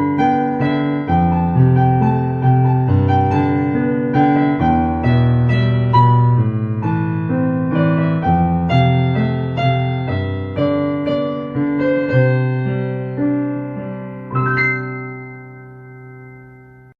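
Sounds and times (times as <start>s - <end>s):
slow calm piano music: 0.0s - 16.9s.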